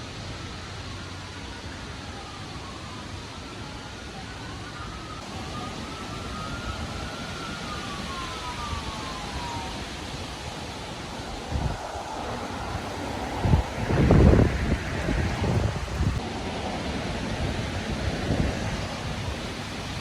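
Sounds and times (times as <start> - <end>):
faint siren wailing: 0.0 - 20.0
gusty wind: 5.2 - 20.0.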